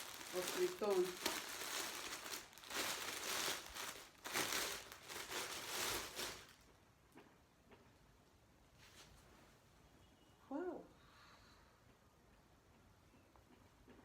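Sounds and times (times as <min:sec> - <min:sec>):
plastic wrap crinkling: 0:00.0 - 0:06.8.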